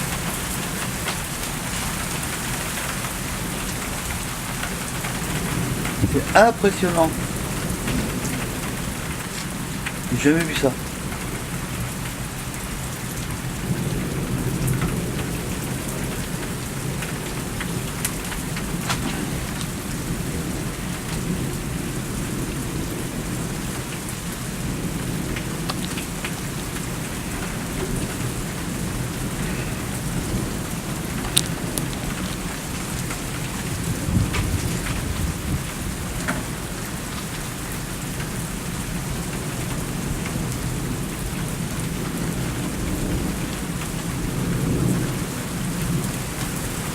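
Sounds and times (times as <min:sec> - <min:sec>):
heavy rain: 0:00.0 - 0:46.9
sharp taps of raindrops: 0:00.0 - 0:46.9
rolling thunder: 0:05.1 - 0:06.4, 0:07.1 - 0:10.2, 0:13.4 - 0:37.0.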